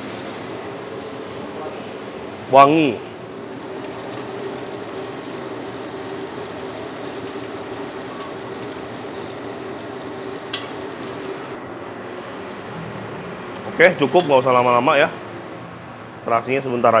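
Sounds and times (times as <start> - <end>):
shrimp paste sizzling in oil: 3.4 - 11.6.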